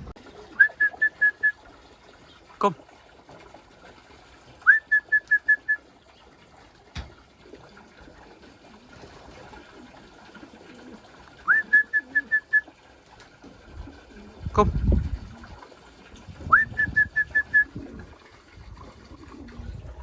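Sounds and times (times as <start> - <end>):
person whistling: 0.6 - 1.6, 4.7 - 5.8, 11.5 - 12.6, 16.5 - 17.7.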